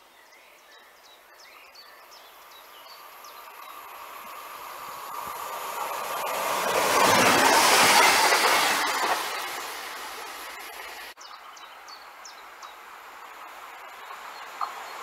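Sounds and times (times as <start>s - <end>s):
electric train passing: 2.4s - 11.2s, 11.8s - 15.0s.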